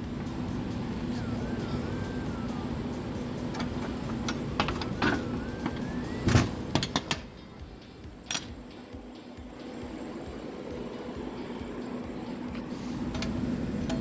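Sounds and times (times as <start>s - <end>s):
steady hum: 0.0s - 14.0s
lock rods clanking: 3.5s - 7.4s, 8.2s - 8.7s, 13.0s - 14.0s.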